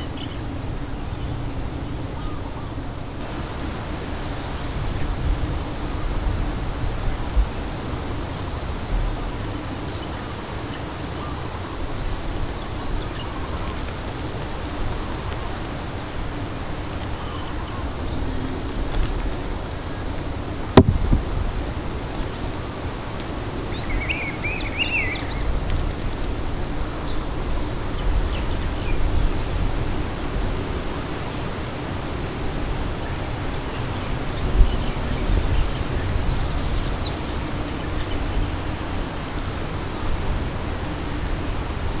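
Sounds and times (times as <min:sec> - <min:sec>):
low outdoor rumble: 0:00.0 - 0:42.0
brief knock: 0:20.8 - 0:21.1
bird chirping: 0:23.6 - 0:25.5, 0:33.1 - 0:38.6.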